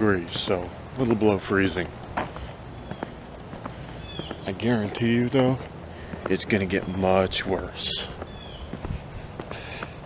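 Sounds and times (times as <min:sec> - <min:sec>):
faint footsteps: 0:00.0 - 0:00.8, 0:01.7 - 0:10.0.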